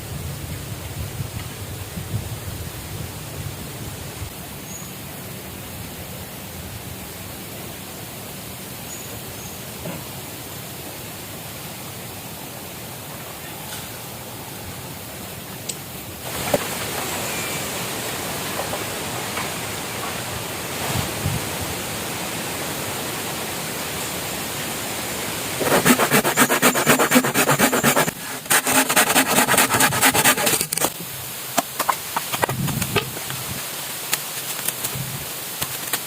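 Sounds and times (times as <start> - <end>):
water rushing: 14.1 - 36.0
hand tool rasping bamboo: 25.6 - 31.0.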